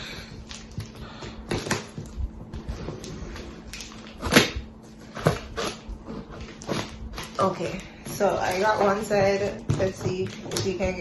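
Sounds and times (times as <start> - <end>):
sharp cardboard crack: 4.1 - 4.6
knocks and scrapes on cardboard box: 5.1 - 11.0.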